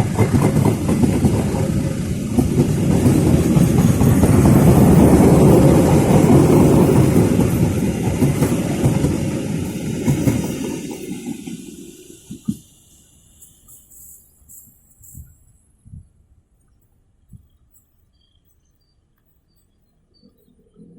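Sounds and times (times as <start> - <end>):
diesel locomotive rumbling past: 0.0 - 13.2.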